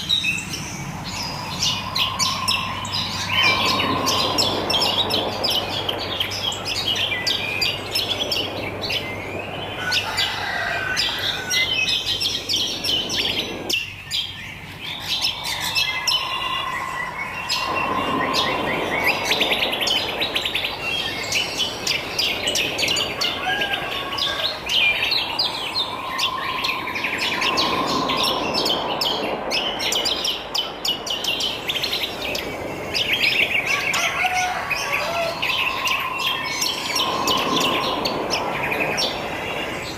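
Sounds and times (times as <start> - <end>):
birds chirping and twittering: 0.0 - 39.9
low whistled note: 15.8 - 20.2, 25.0 - 29.3.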